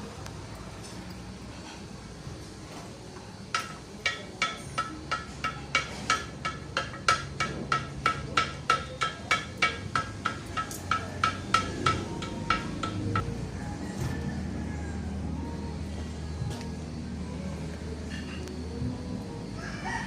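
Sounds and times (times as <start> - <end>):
hammer blows on steel anvil: 3.6 - 13.3.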